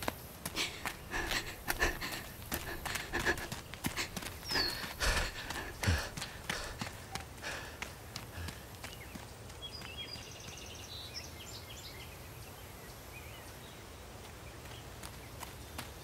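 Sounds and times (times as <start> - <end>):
bird chirping and trilling: 4.4 - 5.0.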